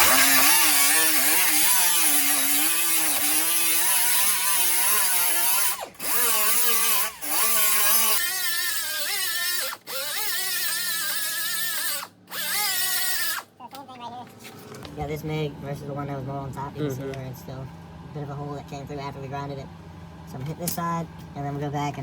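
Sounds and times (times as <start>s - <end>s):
electric grinder grinding metal: 0.0s - 13.5s.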